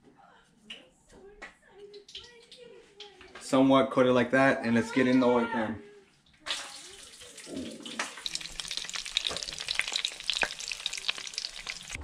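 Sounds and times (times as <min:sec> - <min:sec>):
fish frying with crackling pops: 0:06.4 - 0:12.0.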